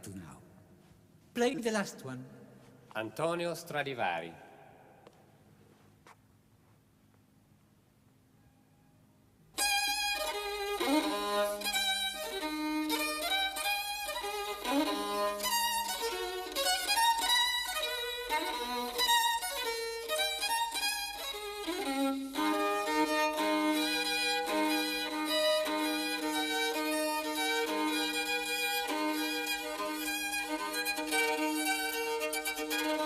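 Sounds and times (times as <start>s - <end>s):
solo violin melody: 9.6s - 33.0s.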